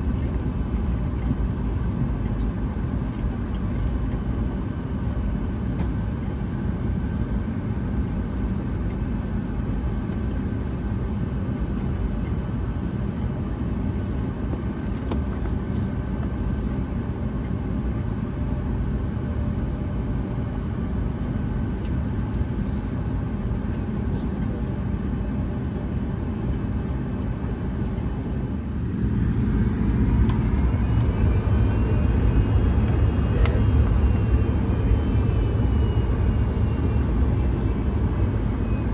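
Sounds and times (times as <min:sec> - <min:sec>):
jet cabin low rumble: 0:00.0 - 0:38.9
rising engine whine: 0:27.6 - 0:38.9.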